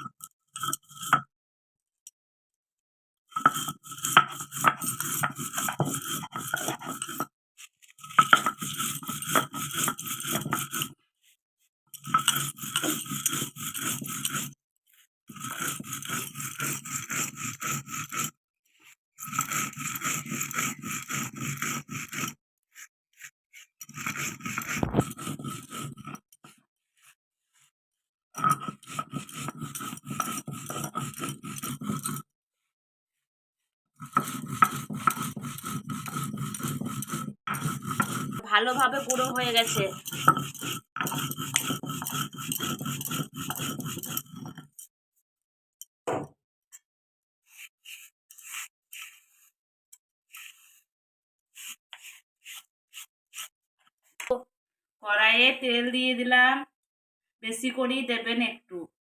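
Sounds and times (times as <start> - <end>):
mixer grinder grinding spices: 0.0 - 1.2, 3.3 - 11.0, 11.9 - 27.2, 28.4 - 32.2, 34.0 - 44.8, 47.5 - 49.5, 50.3 - 50.8, 51.6 - 53.5
spices rattling in jar: 12.0 - 14.5, 34.2 - 44.6.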